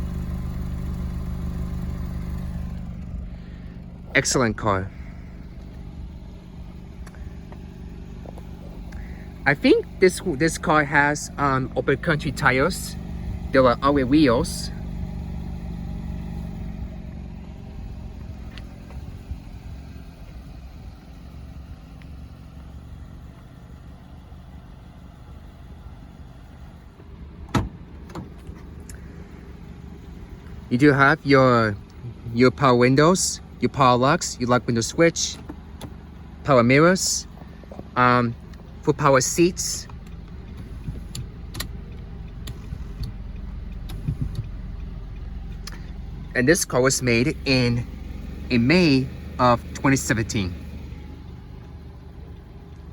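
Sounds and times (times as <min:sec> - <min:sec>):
car engine idling: 0:00.0 - 0:52.9
sharp clicks: 0:39.8 - 0:46.1.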